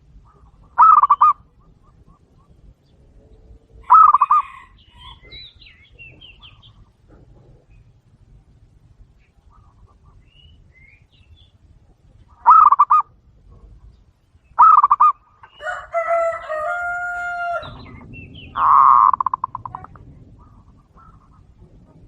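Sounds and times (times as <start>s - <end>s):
doves cooing in trilled bursts: 0.0s - 5.5s, 12.3s - 13.7s, 14.6s - 15.2s, 17.0s - 22.0s.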